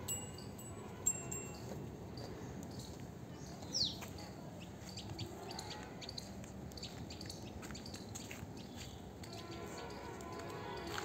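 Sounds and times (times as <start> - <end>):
small birds chirping: 2.2 - 9.7.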